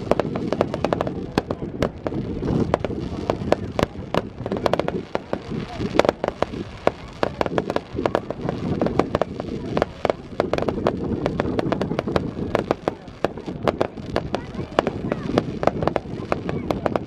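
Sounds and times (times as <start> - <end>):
fireworks banging and cracking: 0.0 - 17.0.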